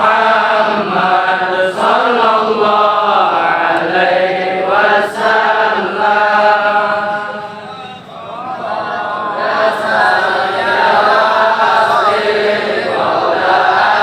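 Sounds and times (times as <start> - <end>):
group of voices chanting: 3.3 - 14.0.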